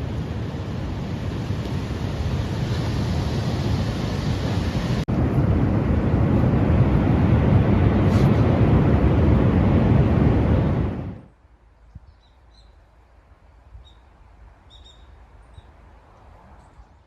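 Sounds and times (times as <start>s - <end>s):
strong wind buffeting microphone: 0.0s - 11.3s.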